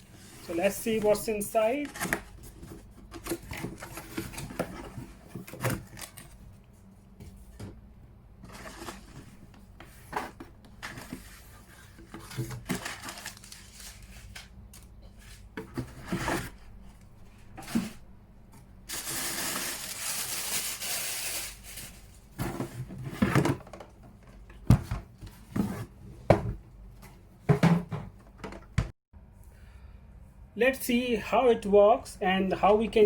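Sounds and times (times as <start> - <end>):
cardboard and plastic knocks: 27.5 - 28.9.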